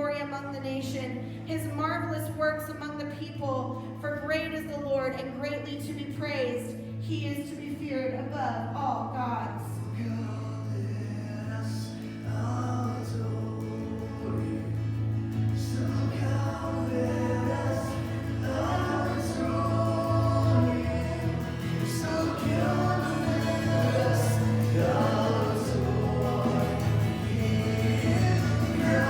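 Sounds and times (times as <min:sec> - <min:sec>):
congregation singing: 0:11.0 - 0:29.0.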